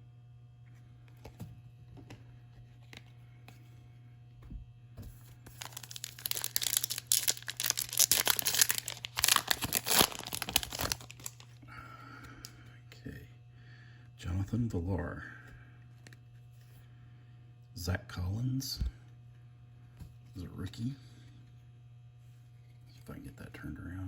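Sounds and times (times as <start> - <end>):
foil wrapper crinkling and tearing: 5.5 - 11.6.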